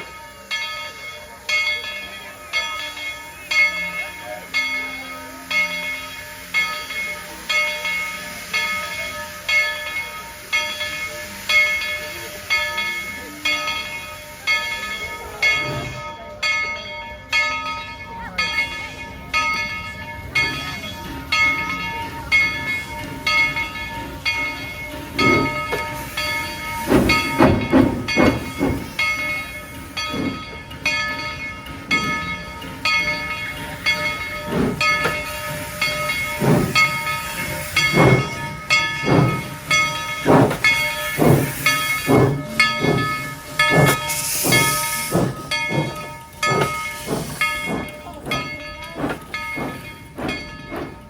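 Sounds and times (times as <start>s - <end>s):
steam locomotive exhaust chuffs: 0.0s - 17.3s, 18.4s - 51.0s
locomotive bell ringing: 0.0s - 51.0s
steam hiss: 0.1s - 16.0s, 19.6s - 51.0s.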